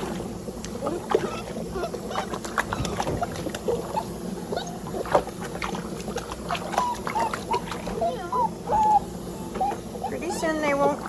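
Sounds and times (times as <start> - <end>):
water splashing in a sink: 0.0 - 9.0
puppy whimpering: 0.8 - 4.9, 6.6 - 11.0.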